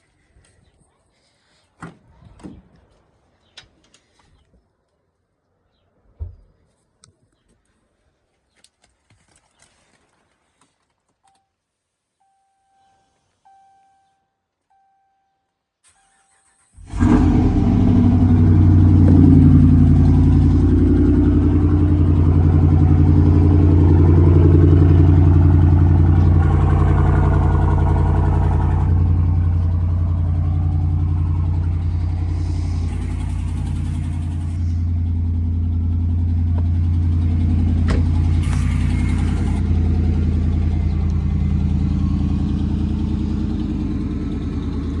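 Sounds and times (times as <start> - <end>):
faint electronic beeps: 11.2 - 16.6
pickup engine starting and idling: 15.8 - 45.0
engine ticking: 16.3 - 45.0.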